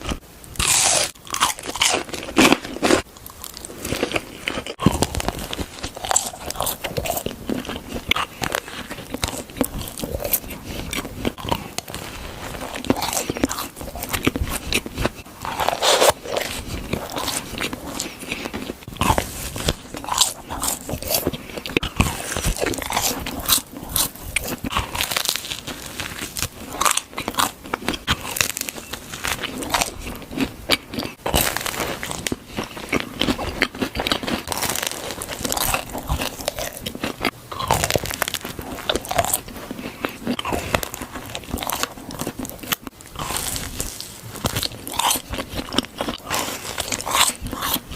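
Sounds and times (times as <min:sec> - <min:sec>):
crunchy bites and chewing: 0:00.0 - 0:47.9.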